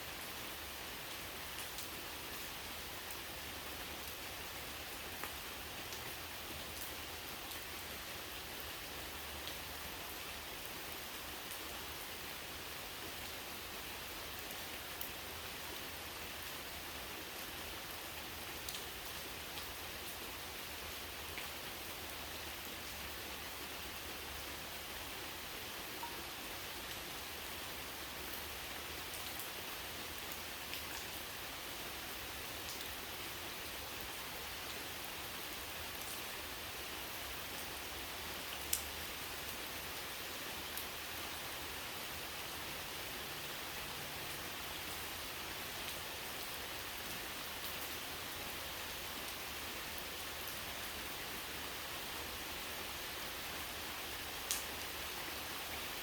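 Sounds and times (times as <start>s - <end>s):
steady rain hiss: 0.0s - 56.0s
raindrop ticks: 38.7s - 38.9s, 54.5s - 54.7s.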